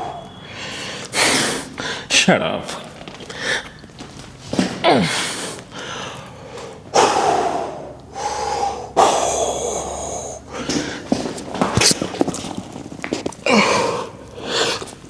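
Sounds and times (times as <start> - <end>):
man forced breathing: 0.0 - 2.1, 4.8 - 11.4, 13.5 - 14.9.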